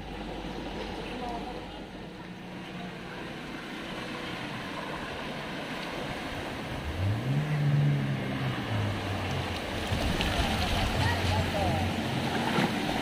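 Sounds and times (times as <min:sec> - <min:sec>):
water washing: 0:00.0 - 0:13.0
car engine revving: 0:06.6 - 0:10.2.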